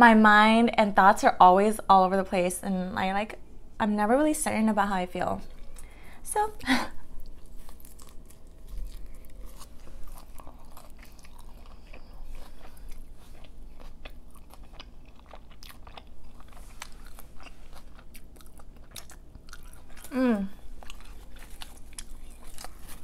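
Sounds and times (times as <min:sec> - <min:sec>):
person chewing: 0:07.0 - 0:23.0
pizza crust crunching: 0:07.2 - 0:23.0.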